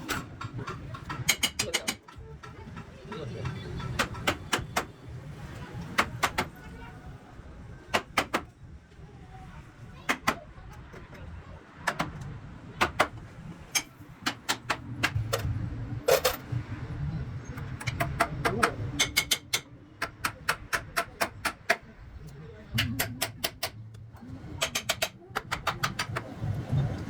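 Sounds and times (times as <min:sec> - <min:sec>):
hand tools tapping wood: 0:00.8 - 0:04.9, 0:24.6 - 0:26.3.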